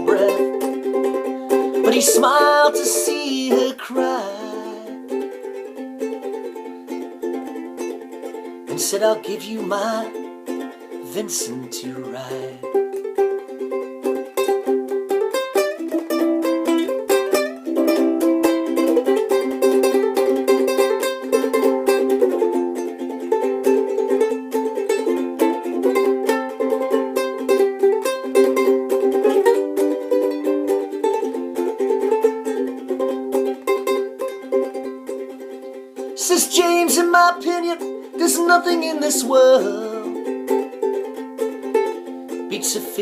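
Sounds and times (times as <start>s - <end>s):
solo ukulele playing: 0.0s - 43.0s.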